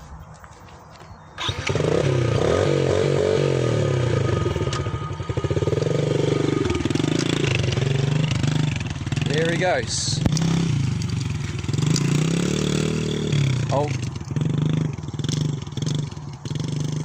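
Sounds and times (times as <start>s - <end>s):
dirt bike engine revving: 1.4s - 17.0s.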